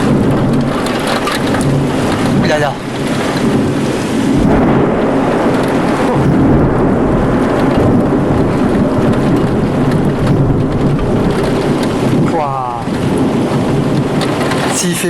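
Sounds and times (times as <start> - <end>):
heavy rain: 0.0 - 15.0
thunder rumbling: 0.0 - 15.0.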